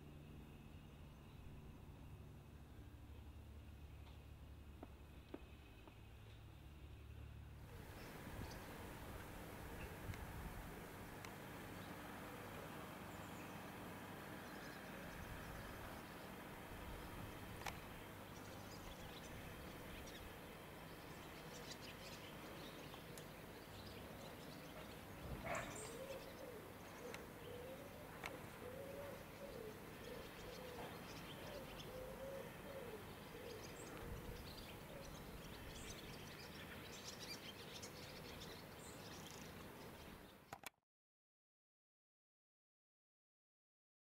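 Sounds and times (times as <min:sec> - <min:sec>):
bird cooing: 0:24.8 - 0:36.0.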